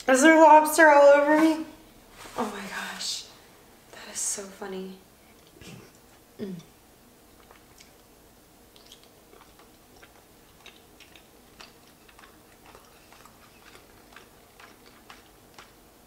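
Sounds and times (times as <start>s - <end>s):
person chewing wet mouth clicks: 7.4s - 8.1s, 8.7s - 15.8s.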